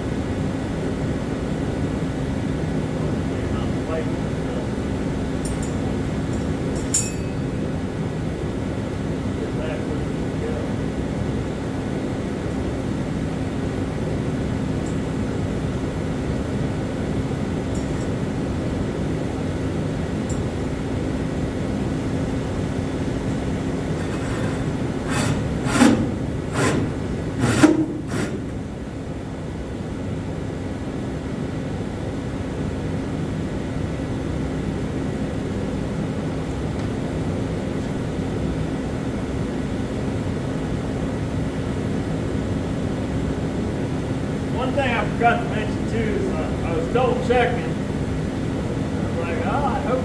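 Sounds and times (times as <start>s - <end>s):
low droning hum: 2.9s - 30.4s
rasping on wood: 23.4s - 28.5s.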